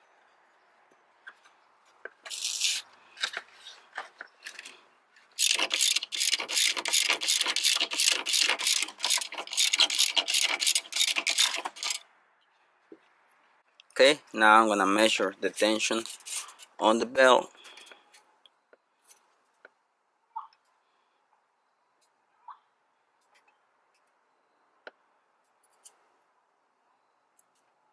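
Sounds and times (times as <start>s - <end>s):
socket ratchet clicking: 5.4s - 12.0s.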